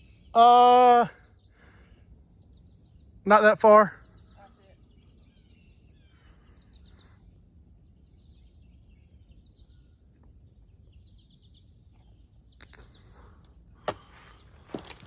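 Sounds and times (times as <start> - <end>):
songbird trilled calls: 2.4 - 7.2.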